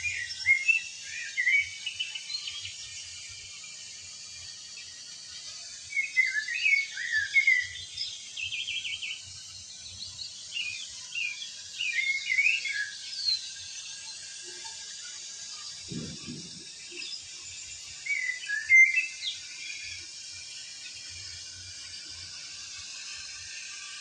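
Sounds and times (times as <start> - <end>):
small birds twittering: 0.0 - 3.6, 5.8 - 21.5
steady high hiss: 0.0 - 24.0.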